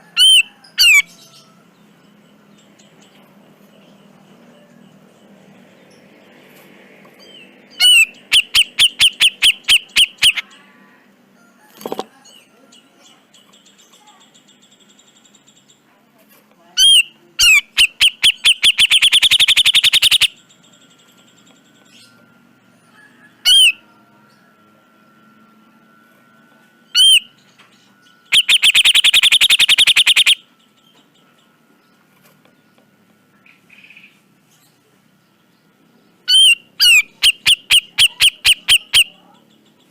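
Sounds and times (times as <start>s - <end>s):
bird calling sharp notes: 7.7s - 10.5s, 16.8s - 20.4s, 23.4s - 23.8s, 26.9s - 27.4s, 28.2s - 30.5s, 36.2s - 39.2s
harsh rattling bird call: 7.7s - 10.6s, 16.8s - 21.4s, 28.2s - 30.5s, 36.2s - 39.2s
quiet bird chirps: 16.6s - 39.9s.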